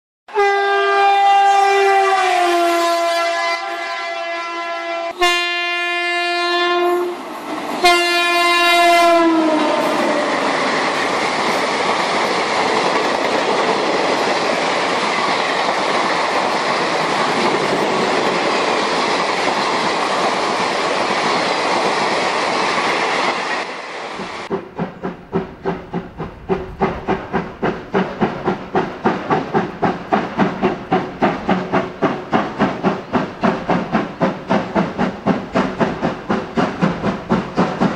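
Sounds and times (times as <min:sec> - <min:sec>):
toy train horn: 0:00.3 - 0:07.2, 0:07.8 - 0:10.3
rhythmic train chugging: 0:24.4 - 0:37.9.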